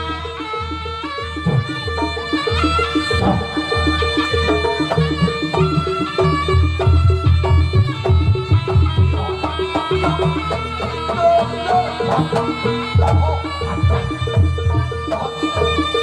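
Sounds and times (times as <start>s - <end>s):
drums: 3.2s - 11.4s.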